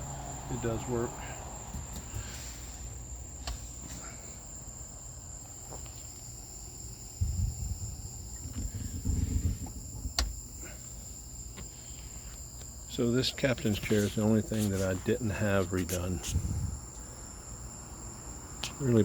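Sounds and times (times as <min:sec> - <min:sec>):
crickets chirping: 0:00.0 - 0:19.0
low rumbling thumps: 0:07.2 - 0:10.4.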